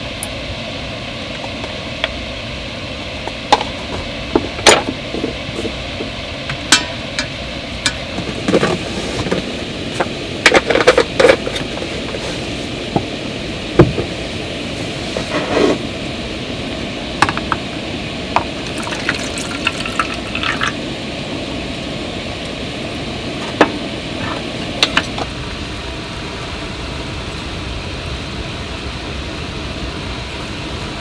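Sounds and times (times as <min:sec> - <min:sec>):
running water: 0:16.6 - 0:25.3.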